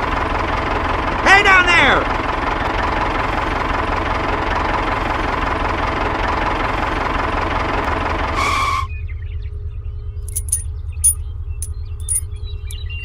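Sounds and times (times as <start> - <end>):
tractor diesel engine idling: 0.0 - 8.9.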